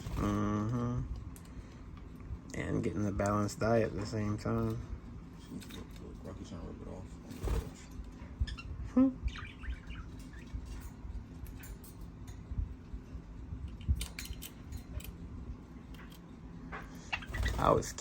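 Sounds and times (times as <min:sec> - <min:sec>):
pet birds chirping: 0:07.4 - 0:18.0.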